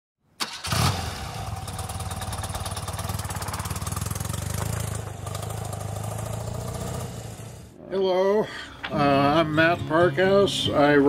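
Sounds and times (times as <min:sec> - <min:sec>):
motorcycle engine idling: 0:01.2 - 0:07.7.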